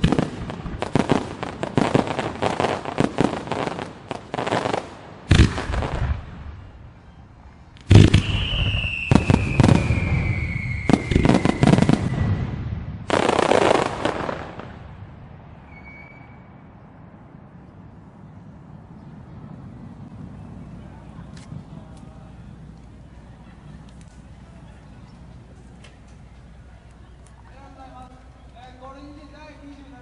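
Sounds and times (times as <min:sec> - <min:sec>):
fireworks crackling and booming: 0:00.0 - 0:07.0, 0:07.7 - 0:18.0
falling firework whistle: 0:07.9 - 0:14.6, 0:15.6 - 0:16.7.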